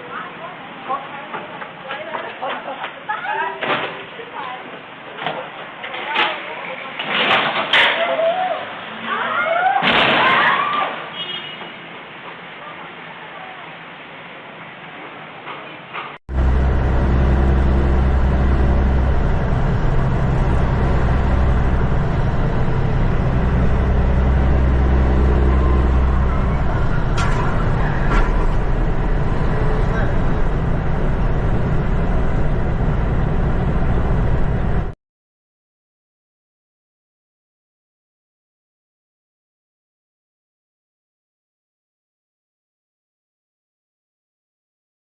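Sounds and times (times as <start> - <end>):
vehicle engine and road noise: 15.8 - 35.0
low hum: 16.3 - 35.0.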